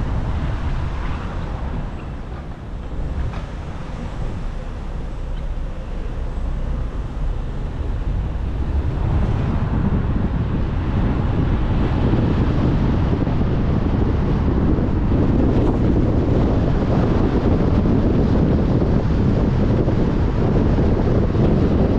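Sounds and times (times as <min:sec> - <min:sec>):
tyre and wind noise: 0:00.0 - 0:21.9.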